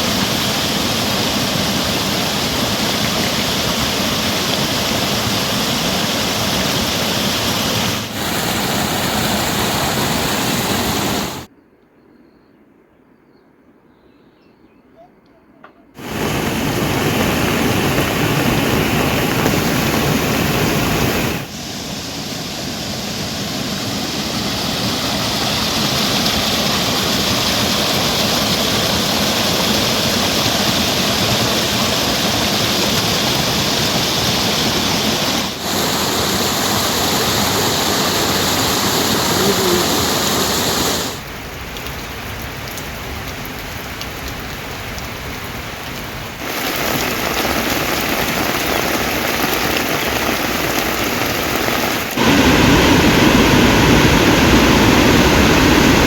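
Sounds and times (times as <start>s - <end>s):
heavy rain hissing: 0.0s - 11.5s, 16.0s - 56.0s.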